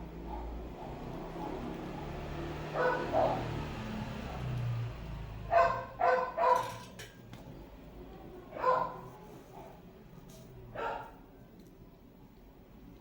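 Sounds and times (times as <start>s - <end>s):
dog barking: 0.2s - 2.1s, 2.7s - 3.6s, 5.5s - 6.7s, 8.5s - 9.7s, 10.7s - 11.2s.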